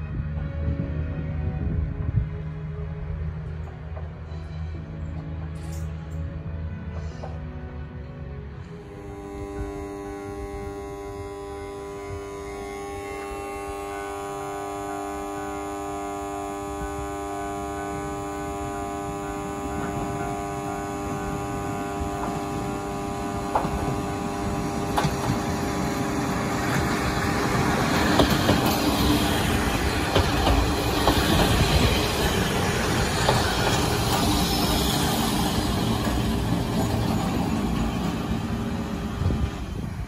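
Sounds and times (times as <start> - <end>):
diesel railcar engine running: 0.0 - 40.0
wheels clicking over rail joints: 23.3 - 35.2.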